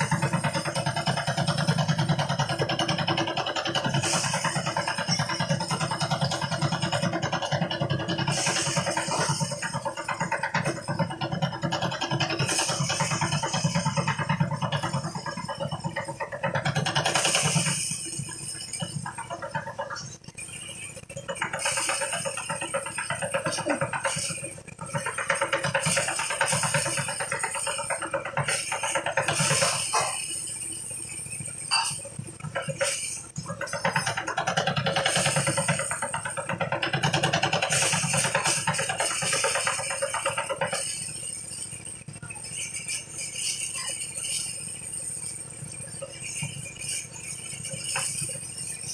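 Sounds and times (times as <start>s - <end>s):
thresher engine running: 0.0s - 30.4s.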